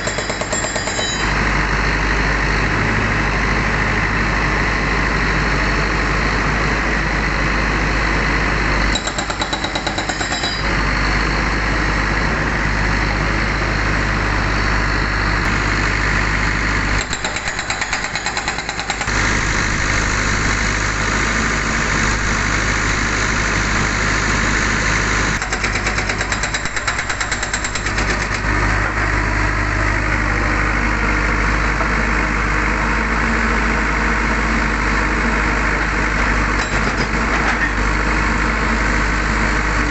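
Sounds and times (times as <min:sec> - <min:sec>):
hydraulic rock breaker hammering: 0:00.0 - 0:01.4, 0:08.9 - 0:10.8, 0:17.0 - 0:19.3, 0:25.4 - 0:29.0, 0:36.6 - 0:37.8
diesel engine running: 0:00.0 - 0:39.9.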